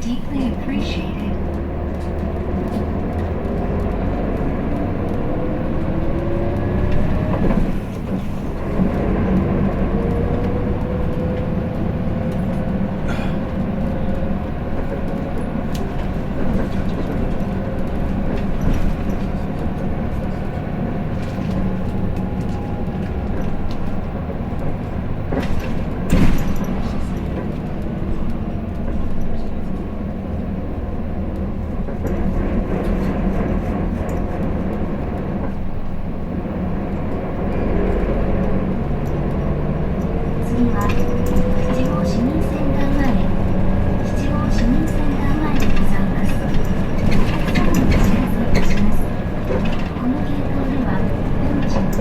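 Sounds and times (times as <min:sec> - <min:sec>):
diesel bus engine: 0:00.0 - 0:52.0
light rattles and clicks: 0:00.3 - 0:52.0.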